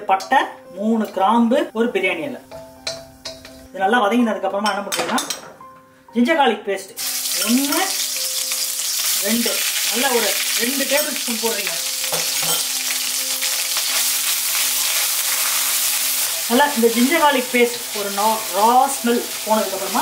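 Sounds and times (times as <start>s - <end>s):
paste sizzling in hot oil: 7.0s - 20.0s.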